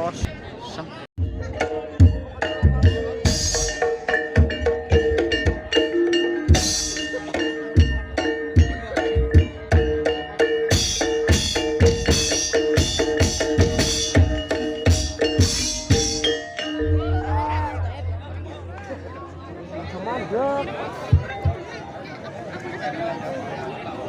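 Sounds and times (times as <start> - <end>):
struck tuned percussion ringing: 1.2 - 19.4.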